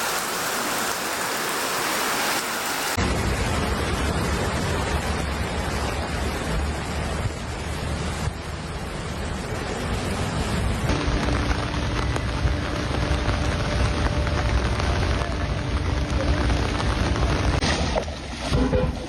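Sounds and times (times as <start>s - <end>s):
heavy rain pouring: 0.0s - 18.9s.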